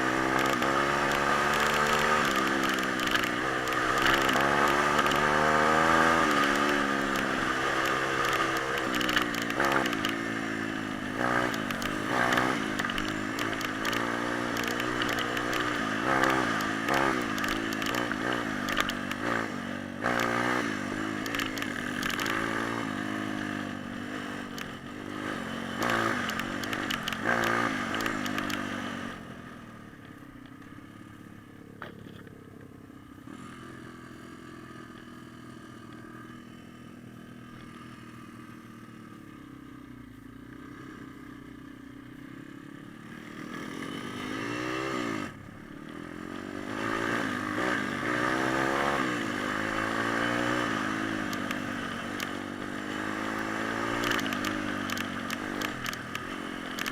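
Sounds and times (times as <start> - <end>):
pit bike engine revving: 0.0 - 29.2, 43.0 - 56.9.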